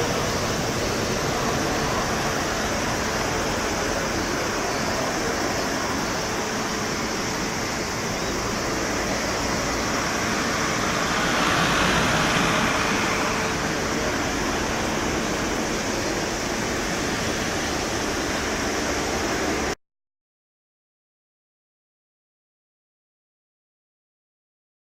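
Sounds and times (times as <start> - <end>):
faint steady whine: 0.0 - 19.8
jet engines rushing: 0.0 - 19.8
wind: 0.0 - 19.8.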